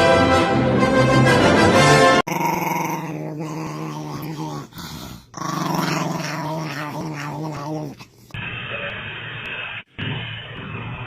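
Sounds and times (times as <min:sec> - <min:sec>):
orchestral music with brass: 0:00.0 - 0:02.2
dog growling: 0:02.3 - 0:08.4.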